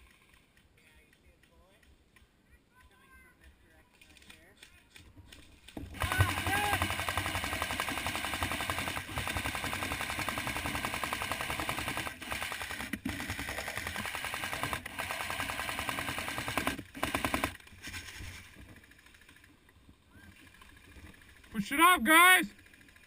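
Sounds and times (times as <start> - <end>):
airsoft guns firing full auto: 5.7 - 18.0.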